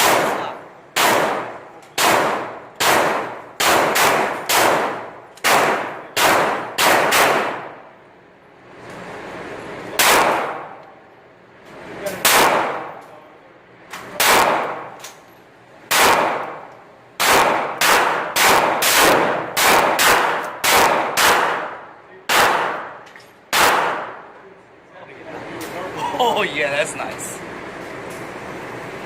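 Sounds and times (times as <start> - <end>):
pistol shots with echo: 0.0 - 7.8, 10.0 - 10.8, 12.2 - 13.0, 14.2 - 15.0, 15.9 - 24.3.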